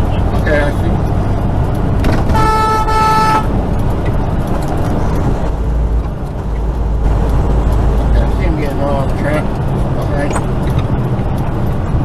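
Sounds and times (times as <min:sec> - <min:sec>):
engine and road rumble: 0:00.0 - 0:12.0
vehicle horn blast: 0:02.2 - 0:03.5.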